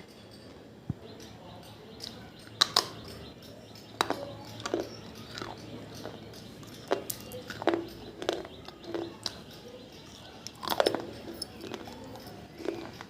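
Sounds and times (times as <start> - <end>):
clay pieces crunching: 6.9 - 9.4, 10.5 - 13.0.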